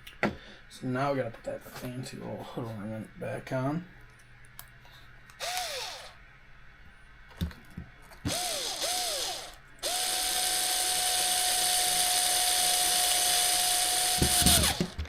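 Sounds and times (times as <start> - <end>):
electric screwdriver motor: 5.4 - 6.2, 8.3 - 15.0.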